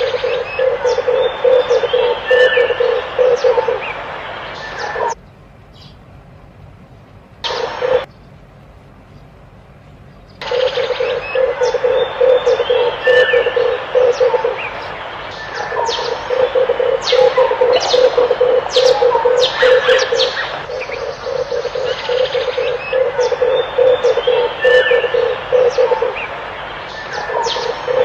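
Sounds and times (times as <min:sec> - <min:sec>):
dove cooing: 0:00.0 - 0:05.2, 0:07.5 - 0:08.1, 0:10.4 - 0:28.0
high bird chirps: 0:10.3 - 0:28.0.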